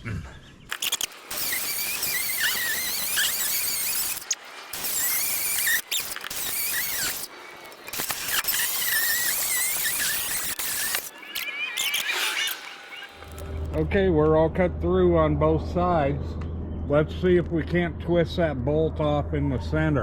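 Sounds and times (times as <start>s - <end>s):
grinder cutting steel: 0.7s - 13.8s.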